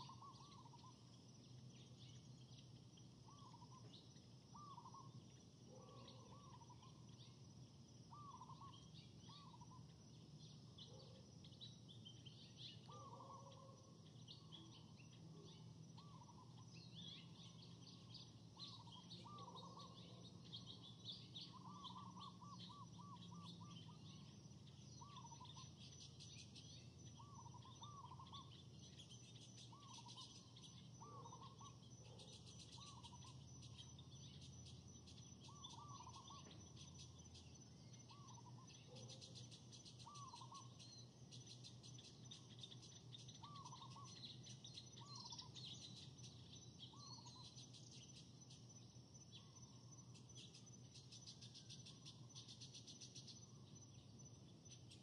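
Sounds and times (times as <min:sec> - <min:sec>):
faint birds calling: 0:00.0 - 0:55.0.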